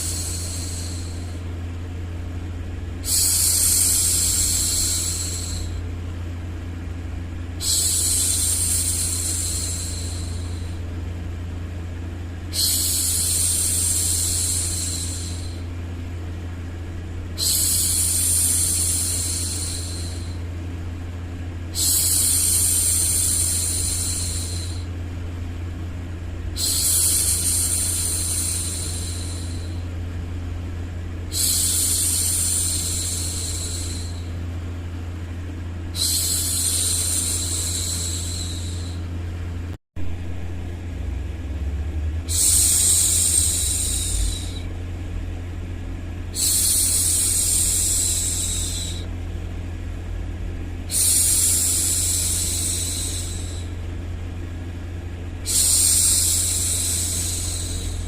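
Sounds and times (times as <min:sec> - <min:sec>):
steady low hum: 0:00.0 - 0:58.0
woman shushing: 0:36.0 - 0:39.0, 0:42.3 - 0:44.7.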